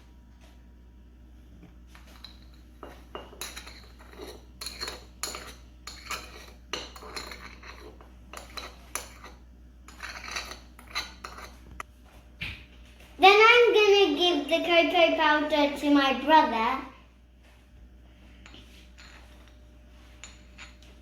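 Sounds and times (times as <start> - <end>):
spoon scraping and clinking cup: 2.1 - 11.6, 18.5 - 19.6, 20.2 - 20.9.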